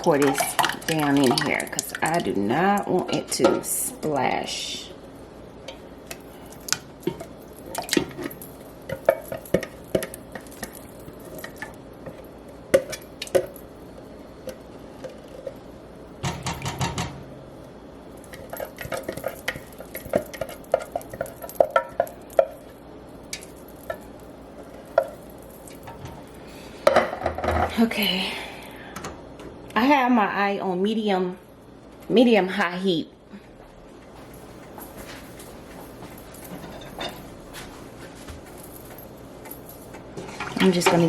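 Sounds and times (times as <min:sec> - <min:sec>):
utensil clinking on metal: 0:00.0 - 0:04.2, 0:05.7 - 0:13.7, 0:18.2 - 0:27.1, 0:36.0 - 0:37.4.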